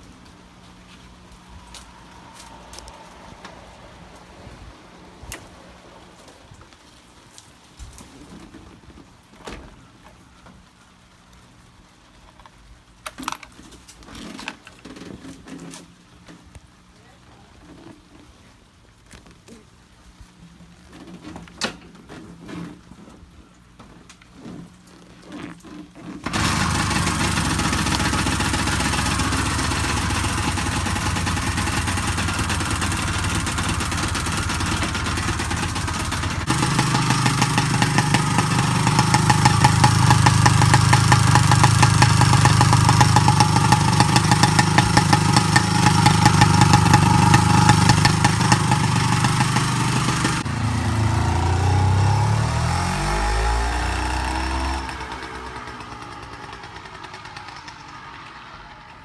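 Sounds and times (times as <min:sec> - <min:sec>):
two-stroke motorcycle engine: 0:26.2 - 0:59.0.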